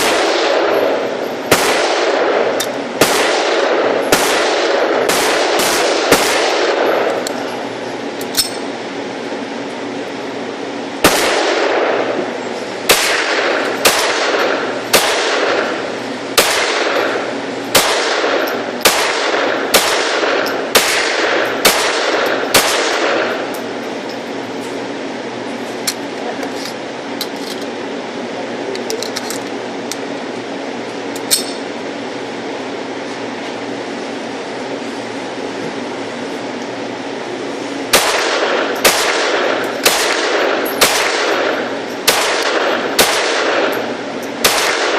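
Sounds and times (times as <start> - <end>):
pistol shots with echo: 0.0 - 7.2, 11.0 - 12.2, 12.9 - 15.8, 16.4 - 23.5, 37.9 - 44.9
steady low hum: 0.0 - 44.9.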